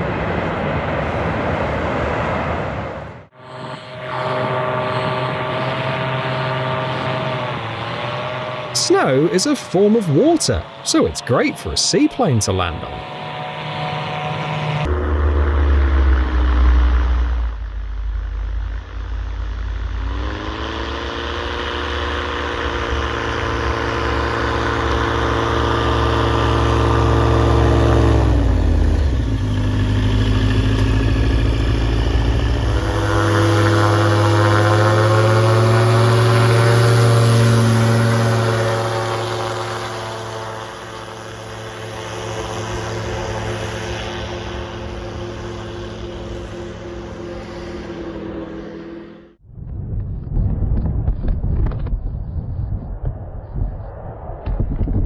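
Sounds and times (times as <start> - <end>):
propeller plane engine throttling: 25.2 - 49.1.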